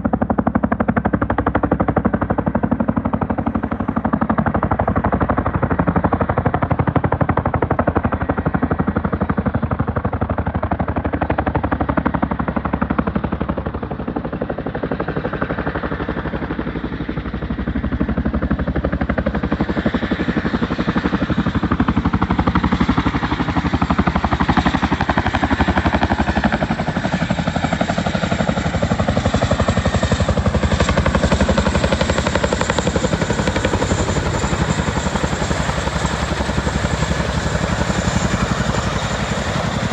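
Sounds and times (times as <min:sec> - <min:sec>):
helicopter rotor blades chopping: 0:00.0 - 0:39.9
helicopter whine and hiss: 0:00.1 - 0:07.9, 0:11.3 - 0:39.9.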